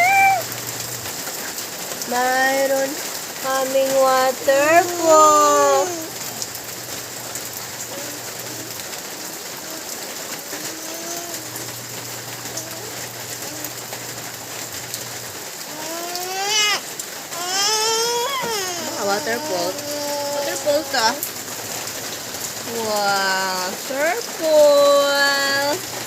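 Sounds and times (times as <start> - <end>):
loud rising cries: 0.0 - 0.6
heavy rain pouring: 0.0 - 26.0.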